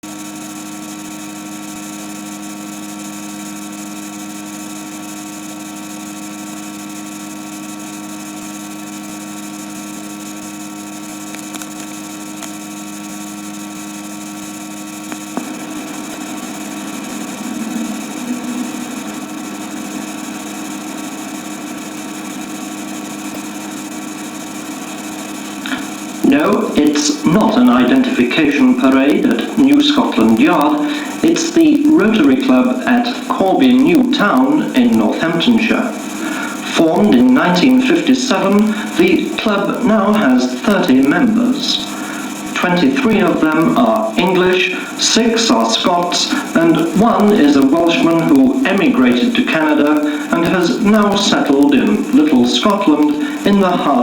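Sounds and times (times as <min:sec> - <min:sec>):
electrical hum with hiss: 0:00.0 - 0:54.0
click: 0:11.1 - 0:12.7, 0:14.0 - 0:15.6.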